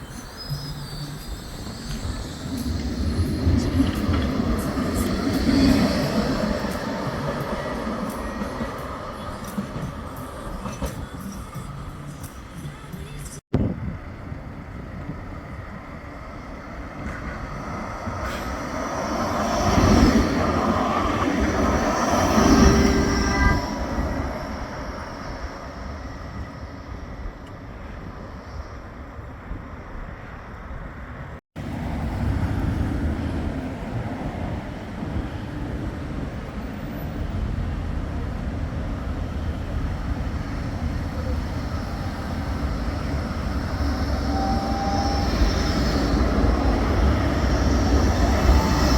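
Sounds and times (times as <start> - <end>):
tram bell ringing: 0.0 - 13.3, 40.1 - 48.9
tram passing: 0.0 - 48.9.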